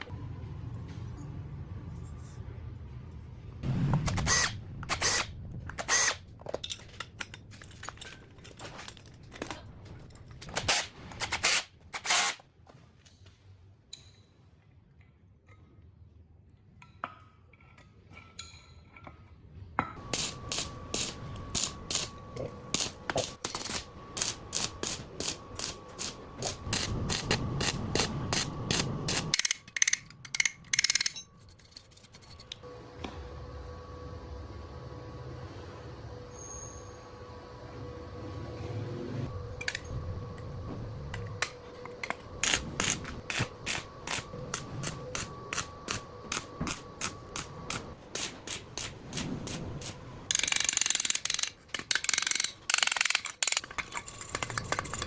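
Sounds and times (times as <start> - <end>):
hand tools clicking and knocking: 20.0 - 32.6, 41.2 - 55.0.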